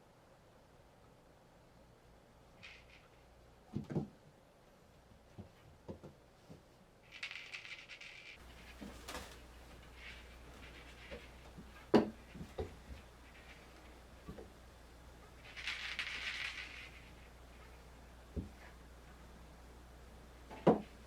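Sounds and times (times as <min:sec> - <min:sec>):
brief rustle: 0:07.1 - 0:14.0.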